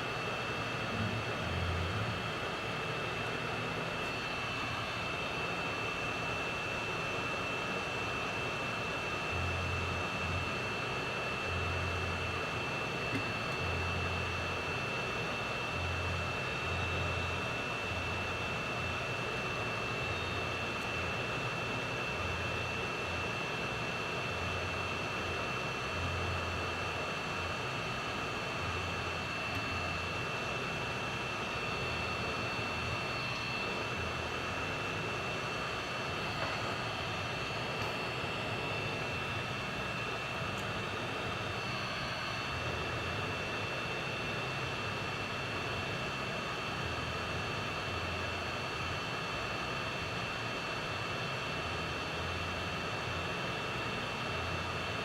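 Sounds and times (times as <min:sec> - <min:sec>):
rushing blower noise: 0:00.0 - 0:05.0
high whine: 0:00.0 - 0:06.0, 0:26.1 - 0:44.6
low hum: 0:00.8 - 0:02.7.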